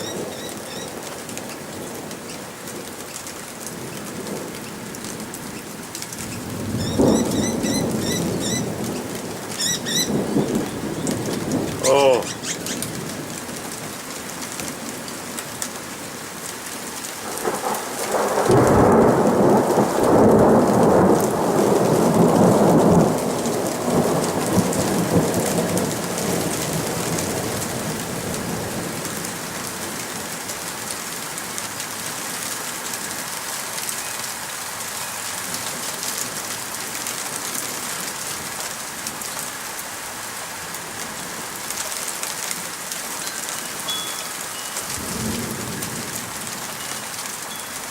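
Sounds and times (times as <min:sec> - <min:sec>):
steady rain falling: 0:00.0 - 0:47.9
rolling thunder: 0:06.4 - 0:11.9, 0:17.2 - 0:29.0, 0:44.9 - 0:46.5.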